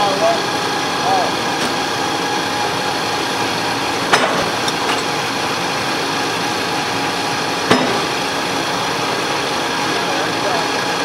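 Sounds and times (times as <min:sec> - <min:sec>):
engine running steadily: 0:00.0 - 0:11.0
sharp knocks: 0:04.1 - 0:05.1, 0:07.7 - 0:08.2.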